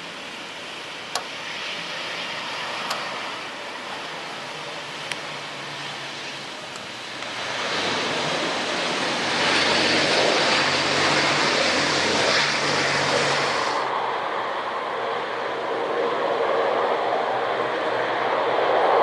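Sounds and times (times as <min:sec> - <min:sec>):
jet airliner passing by: 0:00.0 - 0:19.0.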